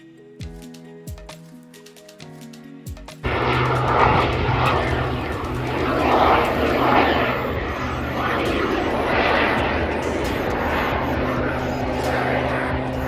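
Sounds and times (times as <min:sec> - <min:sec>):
soft background music: 0:00.0 - 0:13.0
airplane engine overhead: 0:03.2 - 0:13.0.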